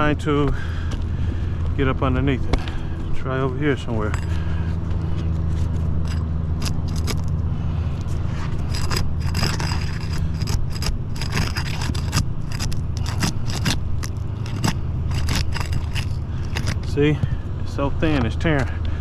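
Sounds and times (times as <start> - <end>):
steady low hum: 0.0 - 19.0
roof shingles tearing: 5.5 - 7.3, 8.4 - 17.0.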